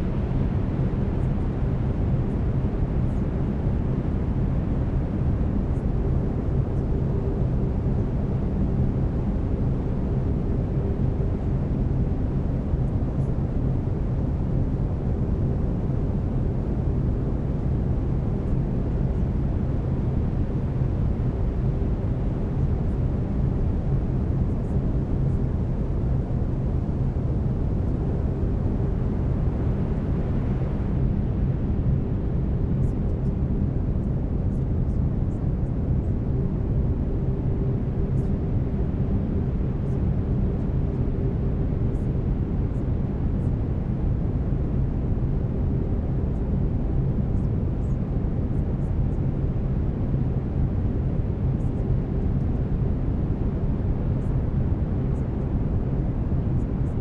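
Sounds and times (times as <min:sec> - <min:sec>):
low binaural hum tones: 0:00.0 - 0:57.0.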